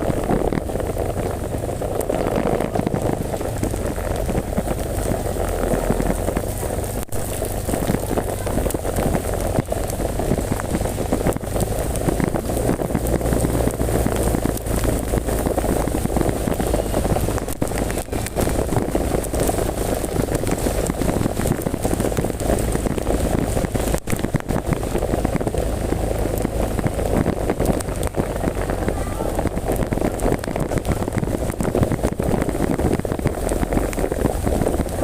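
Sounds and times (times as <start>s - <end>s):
heavy rain falling: 0.0s - 35.0s
low rumble: 0.0s - 35.0s.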